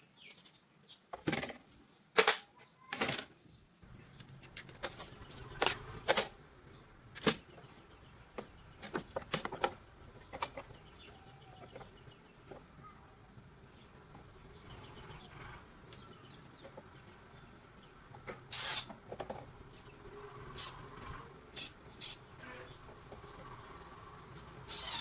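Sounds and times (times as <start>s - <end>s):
sharp clicks and knocks: 8.3s - 12.7s.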